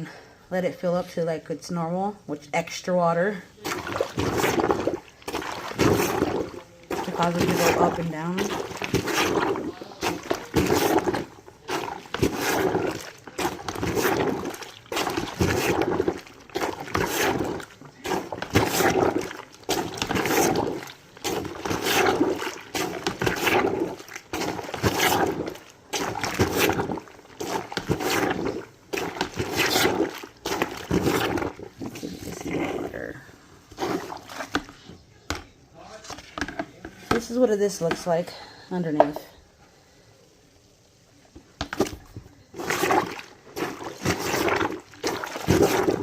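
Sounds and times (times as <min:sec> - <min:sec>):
laundry water sloshing: 0:03.2 - 0:35.4, 0:36.0 - 0:39.2, 0:41.4 - 0:46.0.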